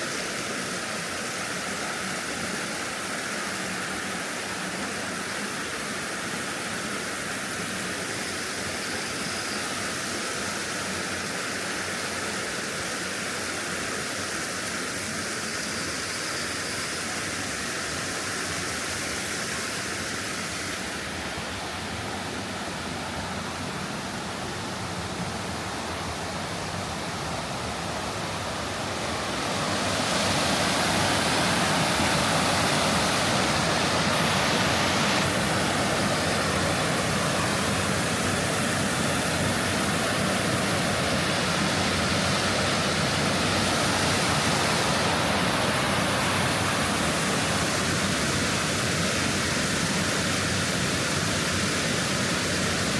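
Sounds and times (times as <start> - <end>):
stream water rushing over rocks: 0.0 - 52.9.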